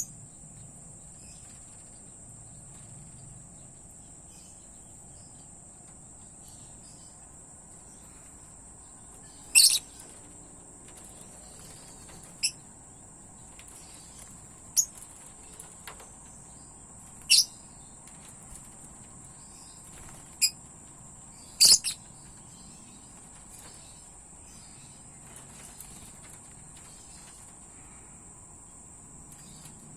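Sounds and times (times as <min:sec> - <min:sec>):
insect trill: 0:00.0 - 0:29.9
sharp bird chirps: 0:09.2 - 0:10.2, 0:17.2 - 0:17.7, 0:21.4 - 0:23.0.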